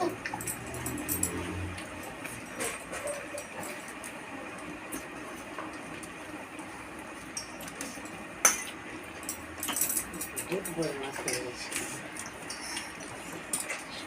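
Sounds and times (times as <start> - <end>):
dishes clinking: 7.3 - 14.0.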